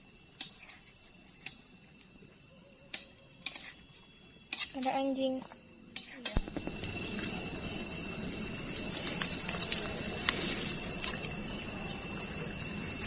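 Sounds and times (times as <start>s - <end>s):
crickets trilling: 0.0s - 13.0s
low even noise: 6.4s - 13.0s.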